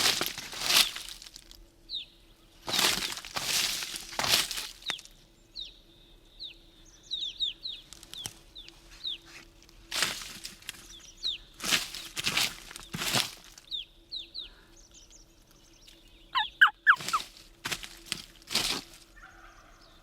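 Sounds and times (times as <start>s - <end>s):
small bird chirping: 4.8s - 9.4s, 10.8s - 17.4s.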